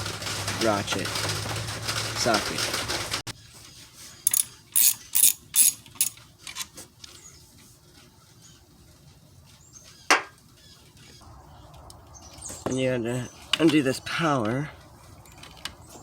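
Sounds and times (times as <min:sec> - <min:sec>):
hand ratchet clicking: 0:04.3 - 0:06.2.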